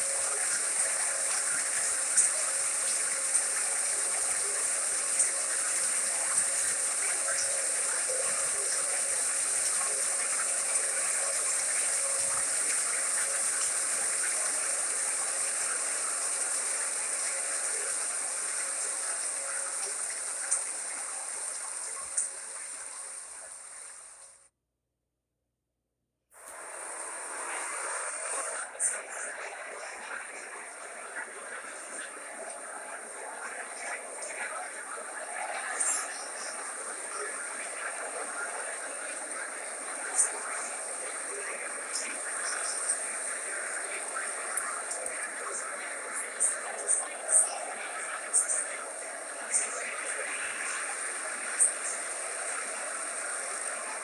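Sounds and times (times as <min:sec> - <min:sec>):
faint clicks: 0:09.6 - 0:23.5, 0:41.4 - 0:47.4.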